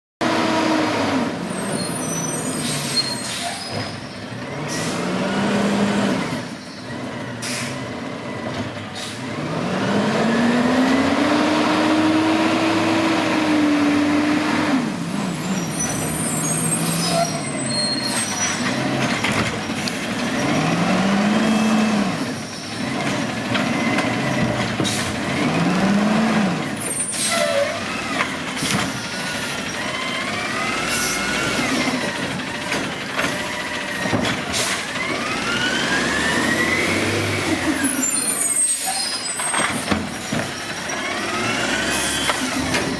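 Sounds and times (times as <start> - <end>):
garbage truck engine revving: 0.2 - 42.9
air brakes hissing: 1.8 - 4.1, 7.4 - 7.9, 8.9 - 9.3, 34.5 - 35.0, 37.6 - 41.0.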